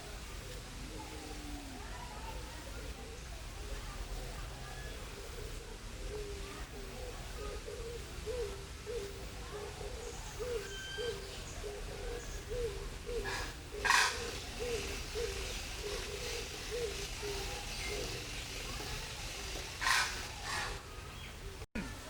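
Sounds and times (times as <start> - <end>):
bird hooting call: 9.9 - 20.8
faint high chirps: 10.1 - 12.8.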